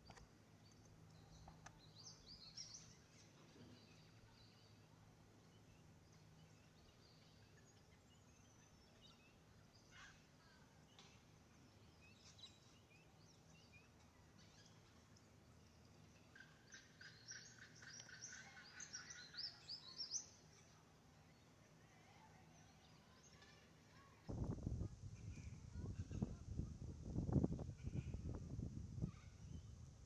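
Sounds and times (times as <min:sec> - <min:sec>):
bird calls: 0:05.6 - 0:20.8.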